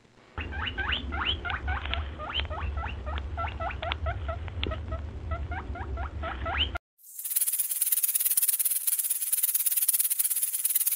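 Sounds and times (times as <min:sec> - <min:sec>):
pika squeaking: 0:00.4 - 0:10.9
low rumble: 0:01.0 - 0:06.8.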